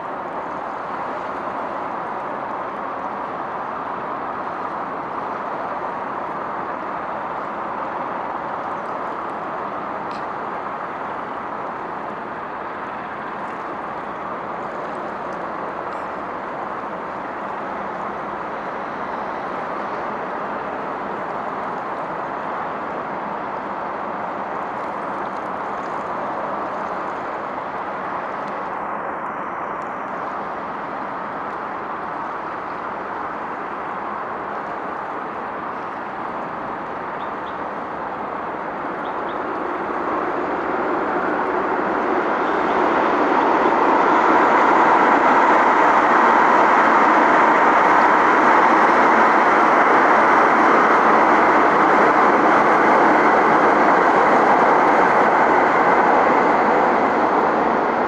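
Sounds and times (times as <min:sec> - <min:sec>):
passing traffic rushing: 0:36.5 - 0:58.0.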